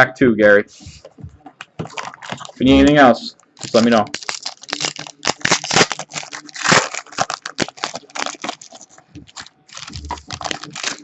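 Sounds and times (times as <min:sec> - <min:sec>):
wrapper crinkling and tearing: 0:01.8 - 0:02.6, 0:03.6 - 0:11.0.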